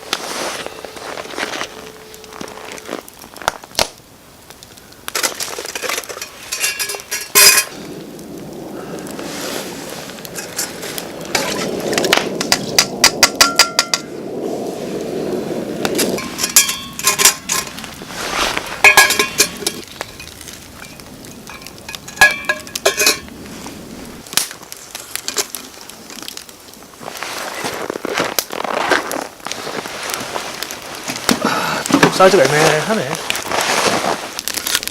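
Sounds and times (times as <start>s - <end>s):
metal cookware clinking: 5.2s - 7.7s, 16.1s - 17.8s, 18.8s - 23.3s.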